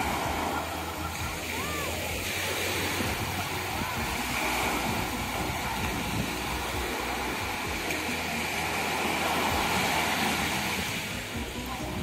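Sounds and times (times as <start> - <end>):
ocean surf rushing: 0.0 - 12.0.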